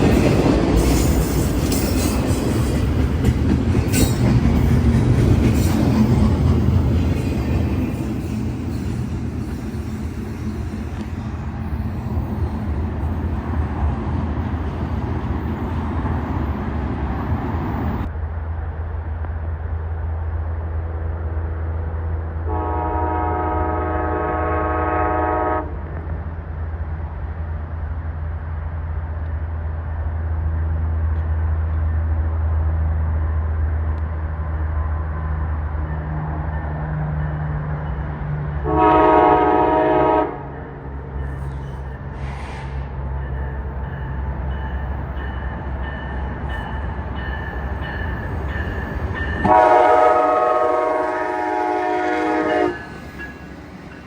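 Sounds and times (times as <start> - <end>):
low train rumble: 0.0 - 54.0
train rolling noise: 0.0 - 54.0
locomotive horn blasts: 22.5 - 25.8, 38.6 - 40.5, 49.4 - 53.0.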